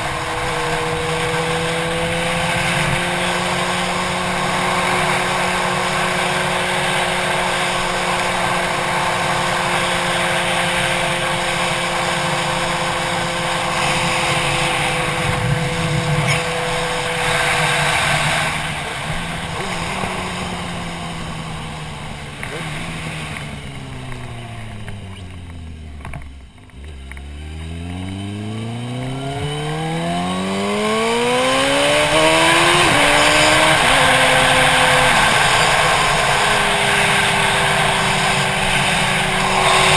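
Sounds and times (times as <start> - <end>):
motorcycle engine: 0.0 - 39.9
wind rush: 13.6 - 20.7.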